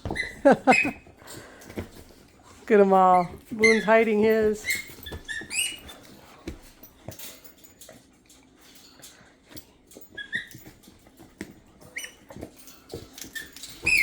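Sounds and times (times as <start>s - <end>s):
squeaker toy squeaks: 0.0s - 1.1s, 3.1s - 6.1s, 10.1s - 10.8s, 11.9s - 12.4s, 13.3s - 14.0s.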